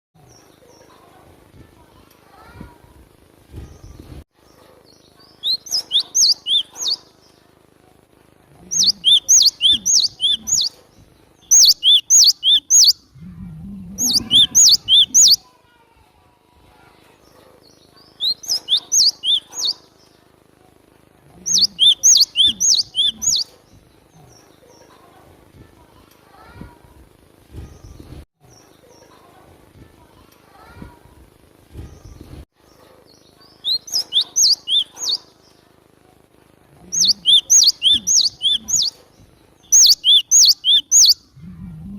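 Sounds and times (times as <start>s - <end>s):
bird singing high whistled notes: 8.8s - 10.7s, 11.5s - 13.0s, 14.0s - 15.4s, 18.2s - 19.8s, 21.5s - 23.4s, 33.6s - 34.9s, 37.0s - 38.9s, 39.6s - 41.2s
low rumble: 13.0s - 14.3s, 41.3s - 41.9s.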